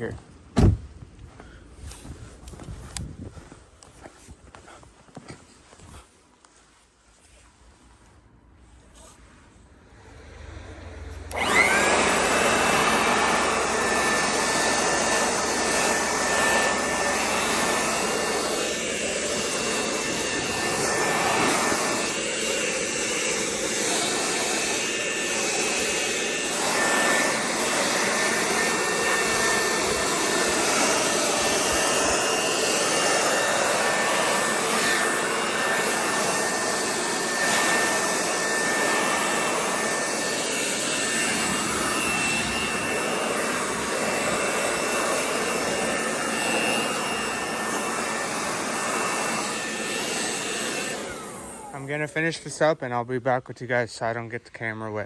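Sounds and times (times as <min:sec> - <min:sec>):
rush of air: 0:09.8 - 0:47.0
electric blower motor whining: 0:09.8 - 0:52.9.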